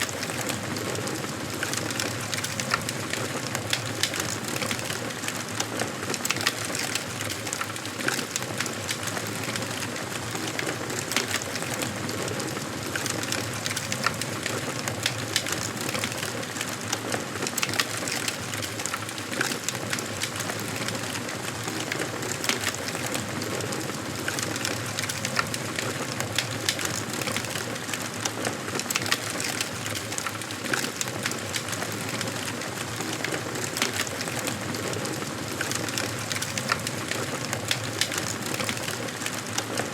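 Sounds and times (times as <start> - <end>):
fire pops and snaps: 0.0 - 5.2, 12.9 - 16.7, 17.5 - 27.8, 28.8 - 39.7.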